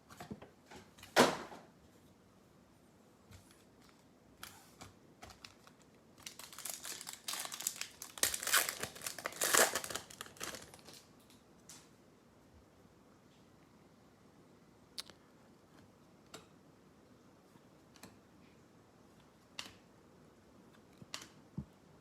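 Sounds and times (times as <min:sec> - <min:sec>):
plastic and foil wrapping crinkling: 0:05.2 - 0:11.1.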